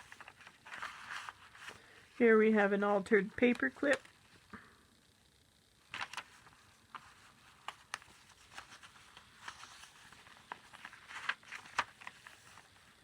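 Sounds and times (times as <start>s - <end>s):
paper pages rustling: 0.0s - 2.2s, 5.8s - 13.0s.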